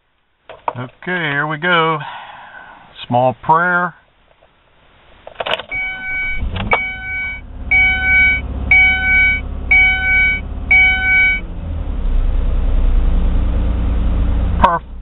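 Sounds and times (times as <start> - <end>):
dashboard warning chime: 5.7 - 11.4.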